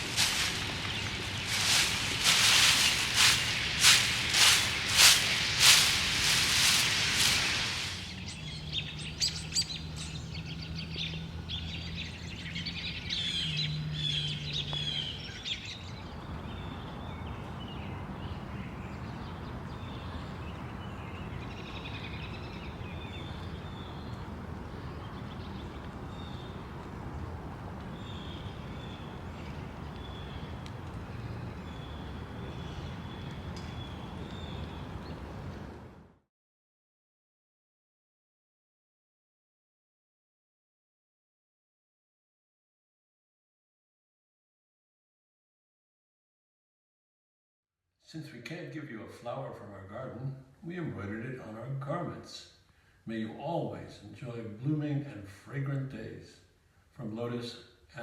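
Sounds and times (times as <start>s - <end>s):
small birds chirping: 0.0s - 35.7s
steady outdoor hiss: 0.0s - 36.1s.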